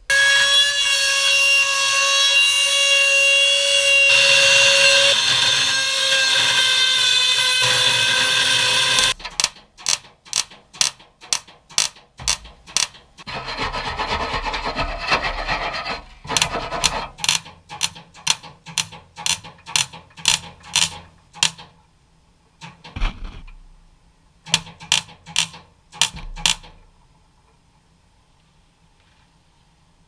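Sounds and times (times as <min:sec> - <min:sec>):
power tool running: 0:00.1 - 0:09.2
rasping strokes on sheet steel: 0:00.1 - 0:21.0.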